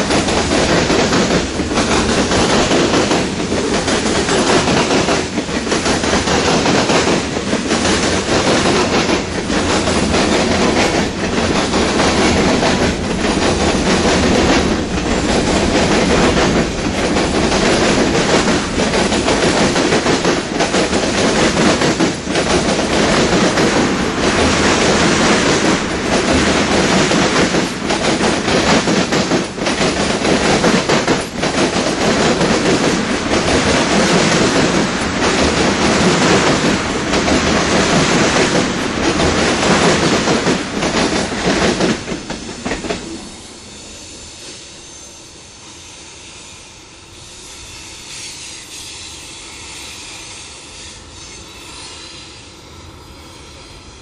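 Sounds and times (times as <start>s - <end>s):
freight train wheels clacking: 0.0s - 52.5s.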